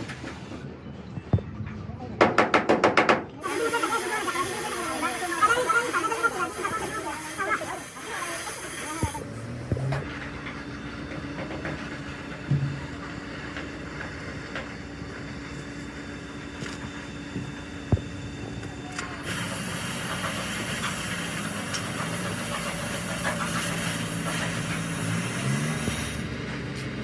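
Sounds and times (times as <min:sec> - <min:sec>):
mechanical hum: 0:00.0 - 0:27.0
hiss of air: 0:03.4 - 0:09.3, 0:19.2 - 0:27.0.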